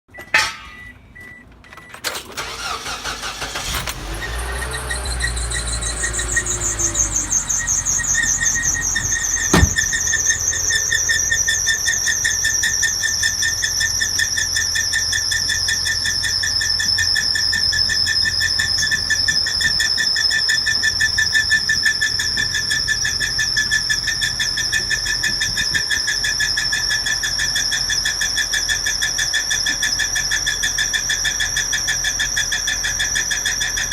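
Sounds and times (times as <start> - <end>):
car engine starting and running: 1.3 - 33.9
high-pitched engine squeal: 2.2 - 33.9.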